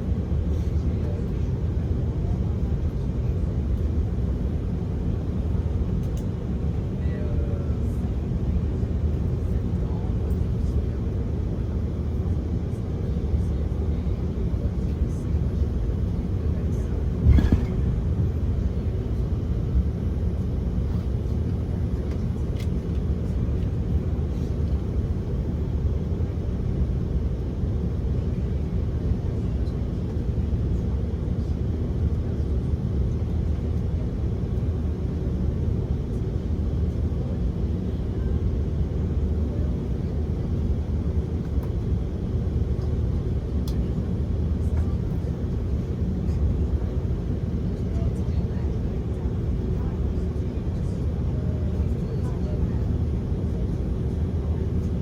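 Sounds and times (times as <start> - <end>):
aircraft cabin rumble: 0.0 - 55.0.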